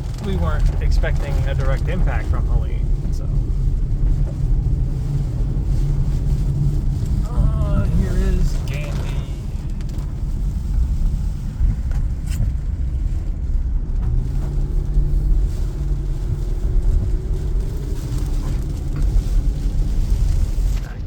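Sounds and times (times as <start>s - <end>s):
car road noise rumble: 0.0s - 21.0s.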